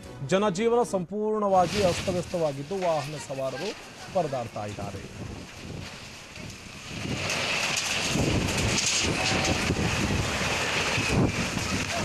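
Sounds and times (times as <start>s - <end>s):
heavy rain: 1.6s - 12.0s
wind buffeting microphone: 3.9s - 12.0s.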